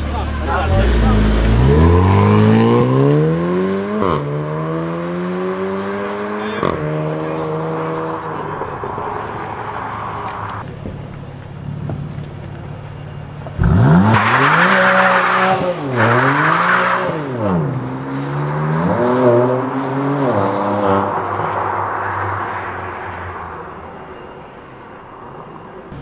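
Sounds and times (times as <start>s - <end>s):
sports car engine revving: 0.0s - 10.6s, 13.5s - 21.5s.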